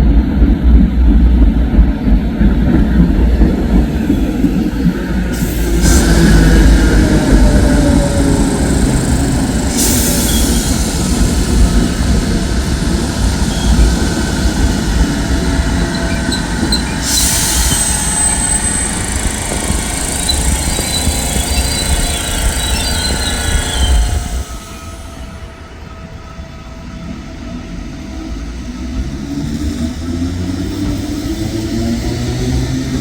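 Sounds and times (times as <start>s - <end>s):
train wheels rumbling on rail: 0.0s - 33.0s
high wheel squeal: 3.8s - 28.0s.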